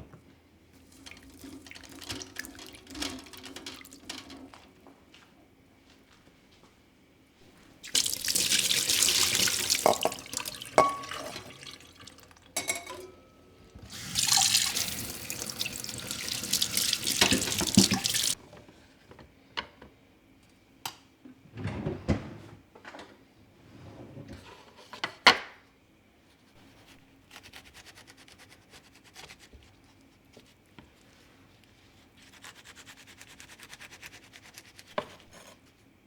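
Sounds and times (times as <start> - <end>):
tap running into sink: 7.9 - 13.0, 13.8 - 18.4
small knocks and clinks: 9.8 - 11.5, 12.6 - 13.4.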